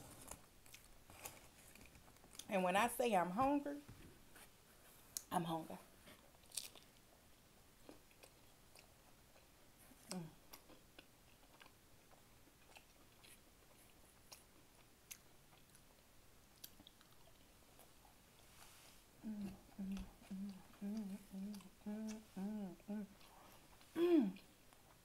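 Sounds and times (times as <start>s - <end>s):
chewing crispy crust: 0.1s - 2.5s, 6.2s - 18.5s
person humming briefly: 19.2s - 23.2s, 24.0s - 24.4s.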